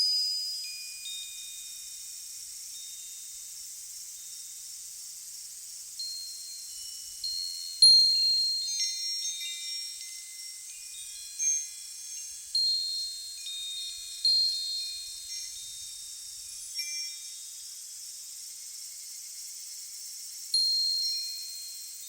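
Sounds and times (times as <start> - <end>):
wind chimes ringing: 0.0 - 3.6, 6.0 - 17.8, 20.5 - 22.0
steady high hiss: 0.0 - 22.0.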